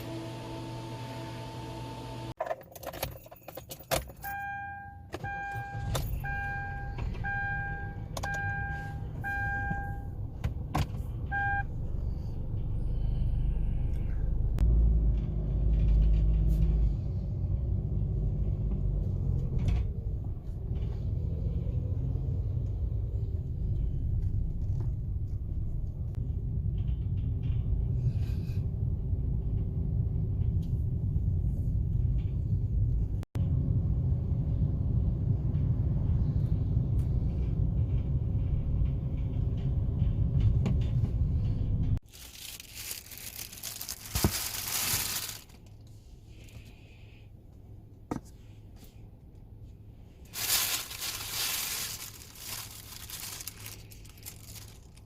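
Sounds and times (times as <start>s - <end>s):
clicks and jangling: 2.4s - 4.3s
car warning chime beeping: 4.2s - 10.2s, 11.3s - 11.7s
low rumble: 5.5s - 45.5s, 49.9s - 55.0s.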